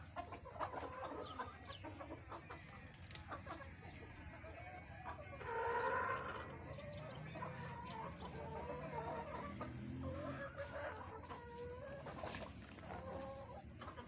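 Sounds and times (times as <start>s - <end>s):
chickens clucking: 0.0s - 14.0s
drawn-out chicken call: 0.0s - 14.0s.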